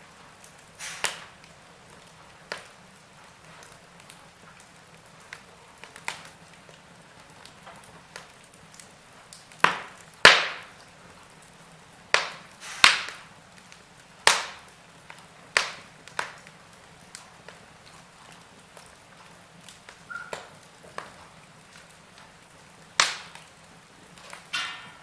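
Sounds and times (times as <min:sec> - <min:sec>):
wood fire crackling: 0:00.0 - 0:25.0
loud sharp pops: 0:00.8 - 0:01.5, 0:09.6 - 0:10.8, 0:12.1 - 0:13.3, 0:14.2 - 0:14.7, 0:15.5 - 0:16.5, 0:22.9 - 0:23.5.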